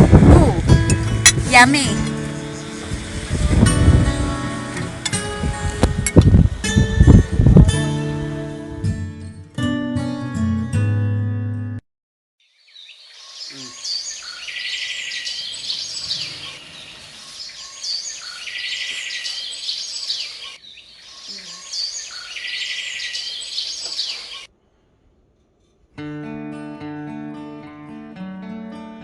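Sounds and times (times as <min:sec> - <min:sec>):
acoustic guitar music: 0:00.0 - 0:11.8, 0:25.8 - 0:29.0
birds chirping and calling: 0:12.6 - 0:24.5.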